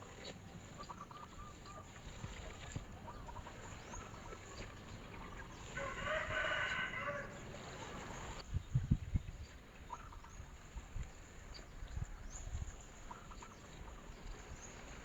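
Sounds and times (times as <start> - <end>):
small birds chirping: 0.0 - 8.8
rooster crowing: 5.7 - 8.4.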